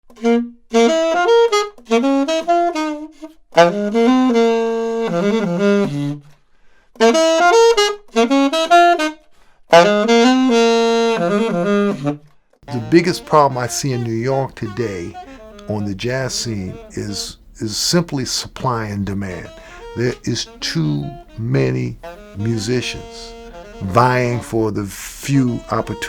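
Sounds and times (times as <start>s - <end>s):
saxophonist breathing: 6.4s - 6.9s, 12.7s - 25.2s
saxophone playing jazz: 12.7s - 26.0s.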